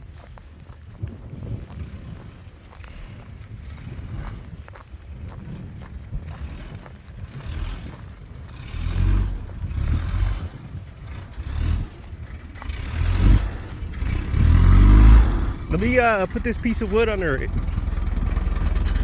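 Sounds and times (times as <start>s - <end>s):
truck engine revving: 6.3s - 19.0s.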